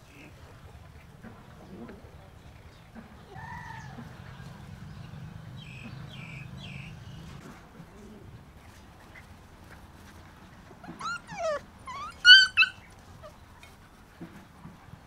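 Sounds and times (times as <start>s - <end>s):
bird calls: 3.4s - 7.4s.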